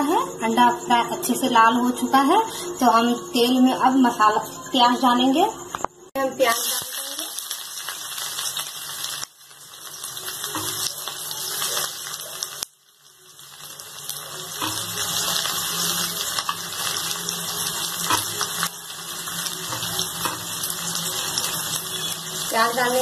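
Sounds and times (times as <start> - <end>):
onions sizzling in hot oil: 6.2 - 23.0.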